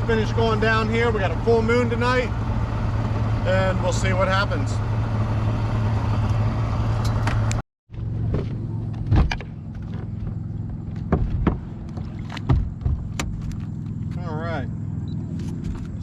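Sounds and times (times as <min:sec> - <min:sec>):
boat motor humming: 0:00.0 - 0:16.0
sharp knocks: 0:11.0 - 0:13.4.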